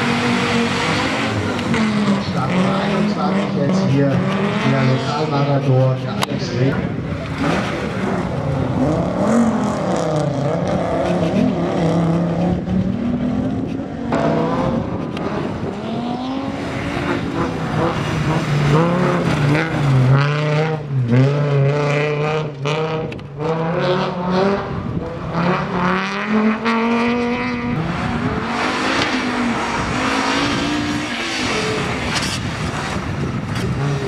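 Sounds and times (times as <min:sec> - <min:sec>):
rally car engine revving: 0:00.0 - 0:34.0.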